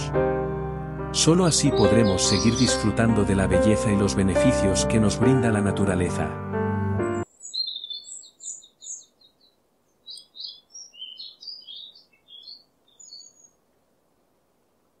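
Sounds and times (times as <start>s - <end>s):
bird chirping and twittering: 1.4s - 3.0s, 7.2s - 13.6s.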